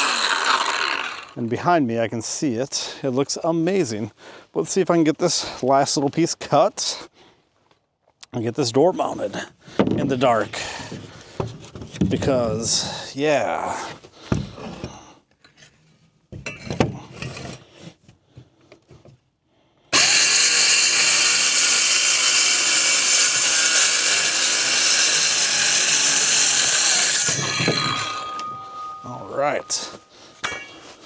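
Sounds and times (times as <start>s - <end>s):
power saw cutting: 0.0s - 1.4s, 19.9s - 31.0s.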